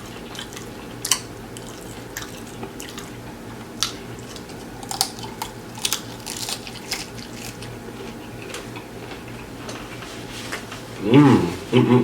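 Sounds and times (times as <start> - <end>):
wet chewing and lip-smacking: 0.0 - 9.4.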